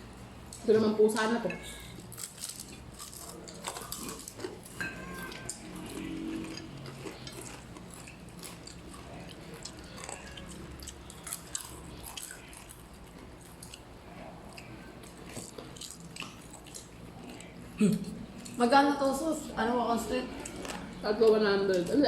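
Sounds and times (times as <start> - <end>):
person biting and chewing food: 1.9 - 18.0.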